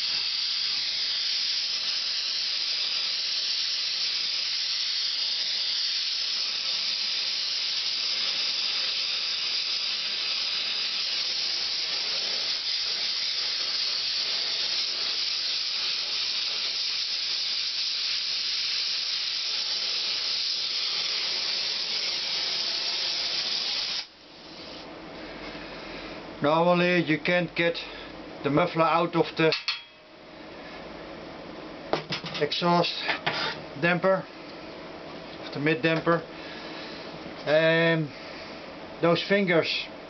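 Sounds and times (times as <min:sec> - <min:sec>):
gas torch flame hissing: 0:00.0 - 0:24.9.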